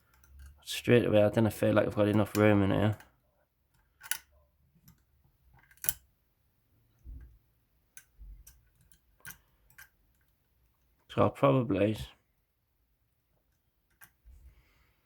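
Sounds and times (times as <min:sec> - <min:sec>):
metallic lock clicks: 0:03.8 - 0:05.0, 0:05.6 - 0:06.1.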